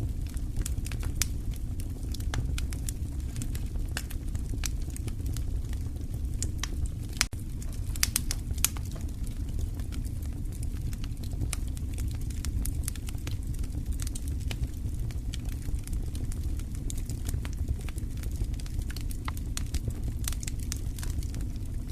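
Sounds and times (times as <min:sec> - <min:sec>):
low rumble of burning logs: 0:00.0 - 0:21.9
wood fire crackling and popping: 0:00.0 - 0:21.9.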